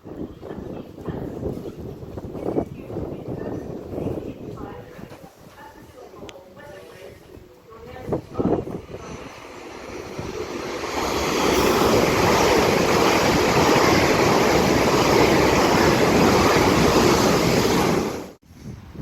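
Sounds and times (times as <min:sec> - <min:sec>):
train passing at speed: 0:08.0 - 0:18.4.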